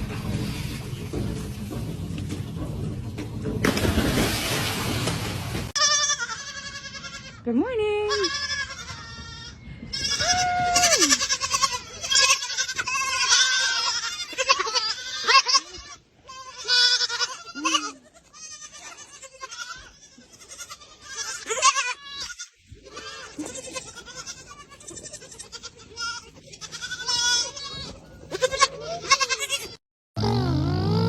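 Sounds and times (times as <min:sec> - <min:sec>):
goats bleating: 0:05.8 - 0:07.4, 0:08.1 - 0:31.0.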